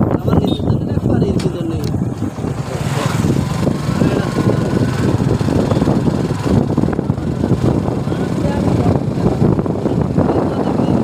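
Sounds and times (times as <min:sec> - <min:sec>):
wind buffeting microphone: 0:00.0 - 0:11.0
motorcycle engine running: 0:00.5 - 0:11.0.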